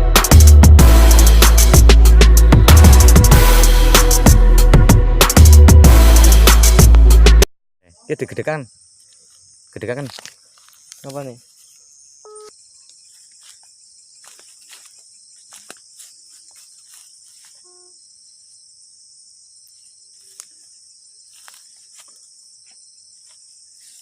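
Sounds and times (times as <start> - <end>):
insects chirring: 7.8 - 24.0.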